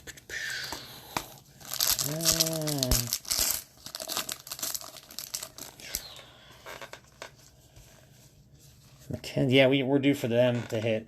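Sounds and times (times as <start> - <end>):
wrapper crinkling: 1.6 - 7.4.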